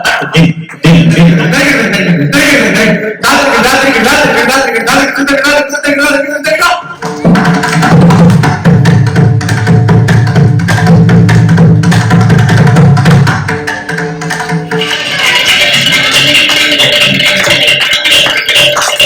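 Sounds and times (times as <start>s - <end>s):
person speaking rhythm syllables: 0.0s - 8.5s, 14.7s - 19.0s
hand drums playing fast: 6.8s - 19.0s.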